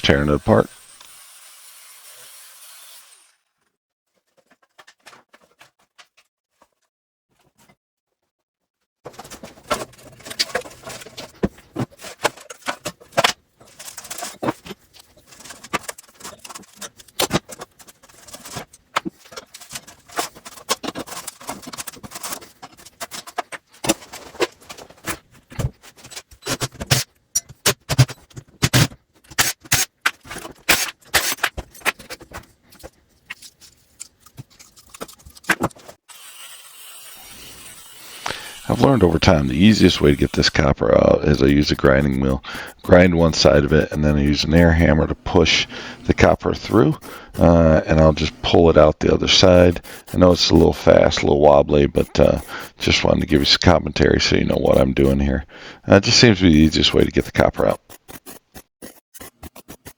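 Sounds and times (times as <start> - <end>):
metal clanks and scrapes: 9.1 - 25.2.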